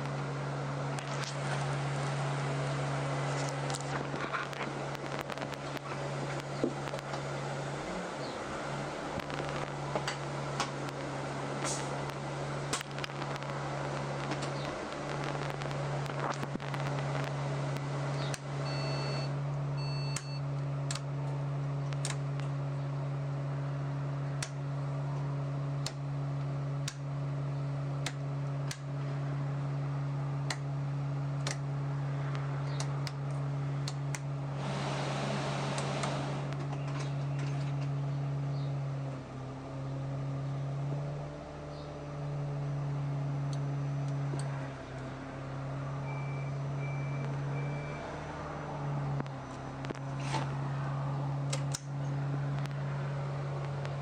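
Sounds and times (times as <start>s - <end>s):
bus machine hum: 0.0s - 54.0s
electronic beeps: 18.6s - 20.4s, 46.0s - 48.1s.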